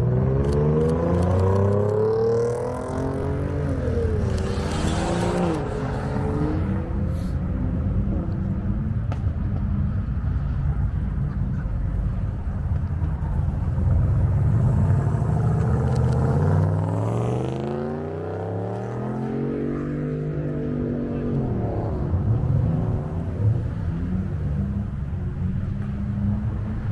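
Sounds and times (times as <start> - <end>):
car engine revving: 0.0 - 7.4, 13.1 - 26.9.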